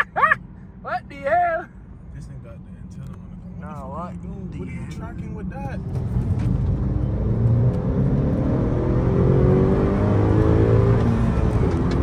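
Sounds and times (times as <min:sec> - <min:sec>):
car engine accelerating: 0:05.1 - 0:12.0.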